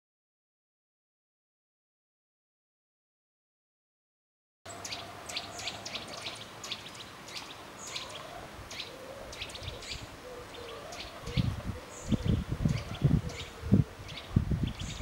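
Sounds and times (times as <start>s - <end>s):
songbirds chirping: 4.7s - 15.0s.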